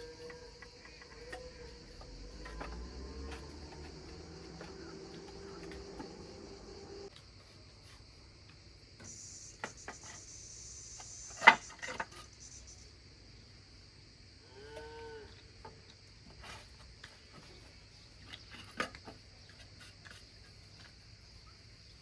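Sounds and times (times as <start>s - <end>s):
insect chirring: 0.0s - 7.4s, 8.0s - 16.2s.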